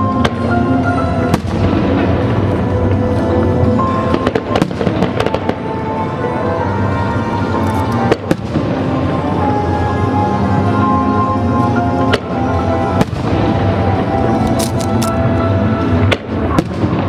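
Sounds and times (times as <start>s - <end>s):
fireworks bangs and crackles: 0.0s - 6.4s, 7.9s - 9.5s, 12.0s - 17.0s.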